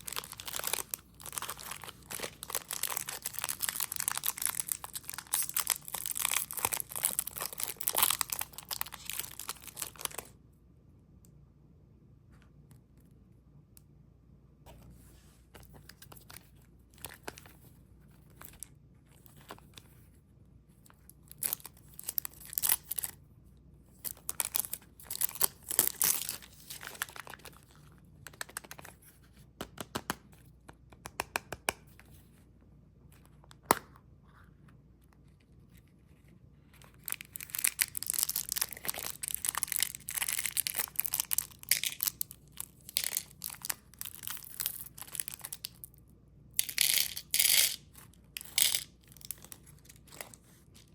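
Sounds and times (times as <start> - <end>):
wrappers crinkling and tearing: 0.0 - 10.3, 24.0 - 28.9, 36.9 - 45.9.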